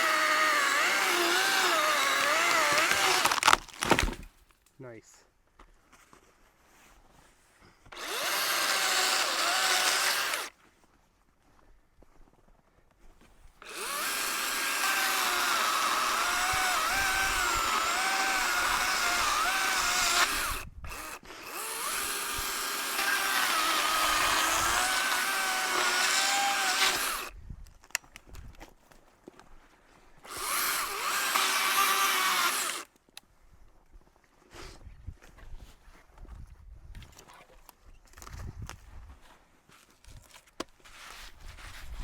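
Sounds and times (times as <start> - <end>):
chainsaw cutting: 0.0 - 4.3, 7.9 - 10.5, 13.6 - 27.4, 30.2 - 32.9
chainsaw idling: 8.0 - 10.5, 13.6 - 27.3, 30.3 - 32.8.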